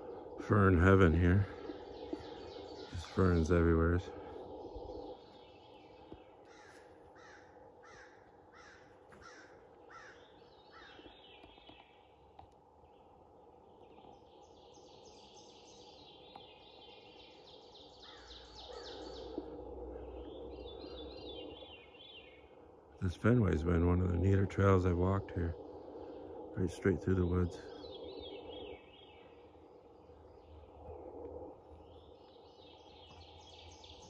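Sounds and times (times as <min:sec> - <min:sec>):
birds falling calls: 0:00.0 - 0:13.0, 0:17.3 - 0:31.1
bird high trills: 0:17.4 - 0:22.6.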